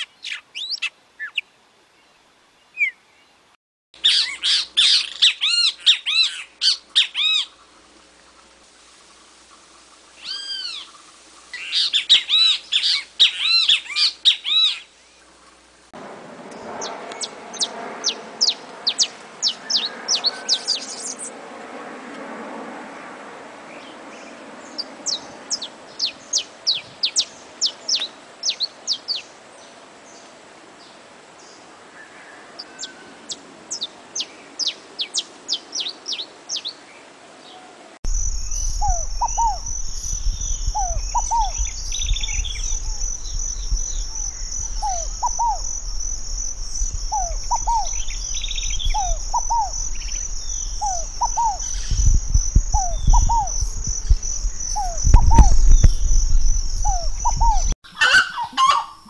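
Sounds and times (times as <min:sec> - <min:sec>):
high insect buzz: 0:38.1 - 0:57.8
low rumble: 0:38.1 - 0:57.8
dove low repeated call: 0:38.1 - 0:59.0.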